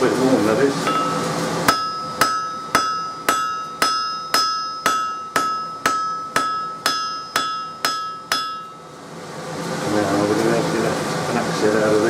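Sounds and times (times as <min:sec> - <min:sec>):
anvil ringing: 0:00.8 - 0:09.0
hammer striking steel on anvil: 0:00.8 - 0:09.0.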